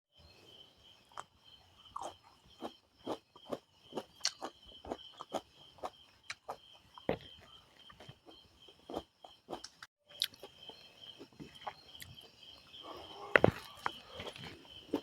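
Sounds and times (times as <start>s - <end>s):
person chewing with mouth clicks: 1.9s - 6.6s, 8.9s - 10.5s.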